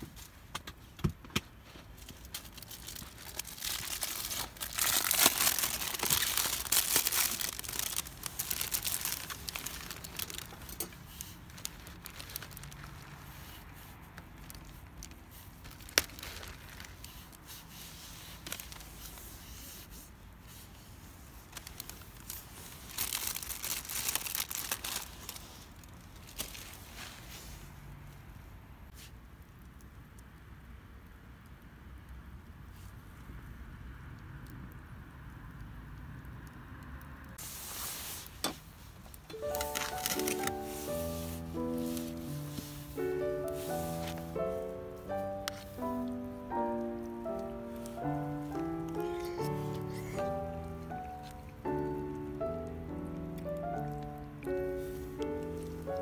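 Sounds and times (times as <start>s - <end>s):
packaging crinkling: 1.7s - 20.0s, 20.6s - 27.3s, 37.4s - 56.0s.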